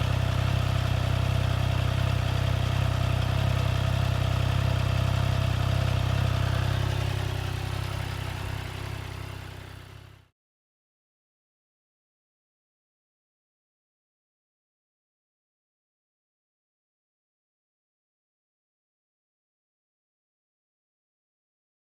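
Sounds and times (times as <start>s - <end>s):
motorcycle engine idling: 0.0s - 10.3s.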